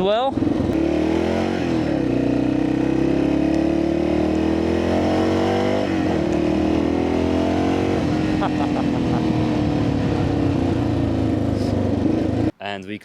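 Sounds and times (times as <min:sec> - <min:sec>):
single-cylinder motorcycle engine: 0:00.0 - 0:12.5.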